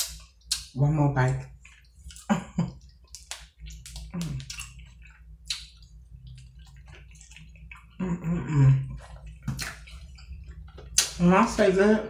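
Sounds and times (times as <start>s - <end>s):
wet mouth sounds: 1.4s - 11.2s
person crunching food: 3.0s - 8.0s.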